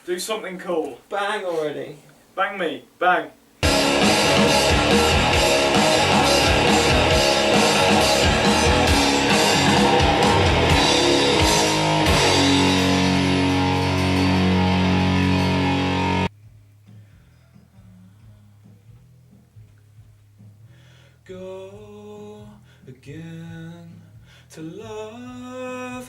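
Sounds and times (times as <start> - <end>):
distorted electric guitar: 3.6 - 16.3
drum hits: 3.6 - 16.3.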